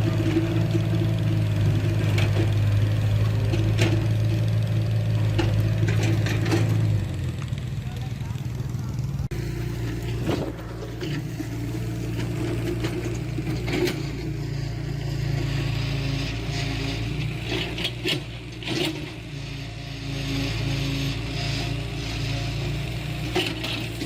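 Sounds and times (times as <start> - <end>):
diesel engine running: 0.0 - 24.0
scraping rattling noise: 9.2 - 19.2.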